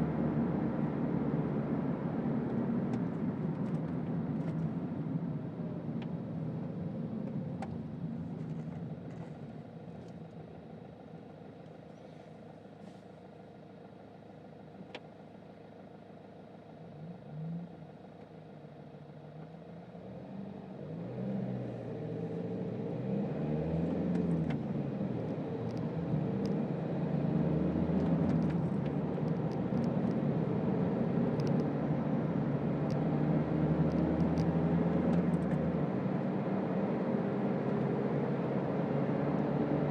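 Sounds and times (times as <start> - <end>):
diesel car engine: 0.0 - 39.9
road noise: 20.0 - 39.9.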